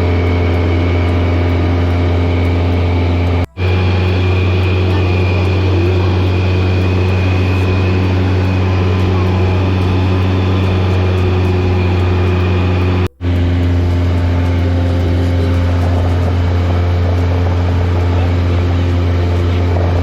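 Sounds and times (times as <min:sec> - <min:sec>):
light plane engine droning: 0:00.0 - 0:20.0.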